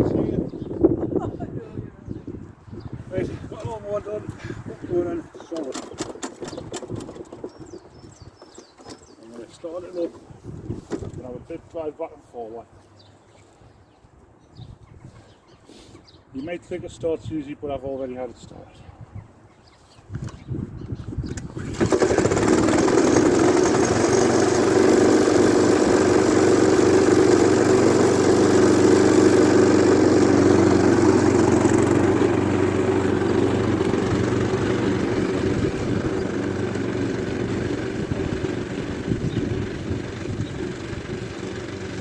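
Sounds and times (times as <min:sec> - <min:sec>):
lawn mower engine running: 0:05.5 - 0:08.0, 0:21.3 - 0:42.0.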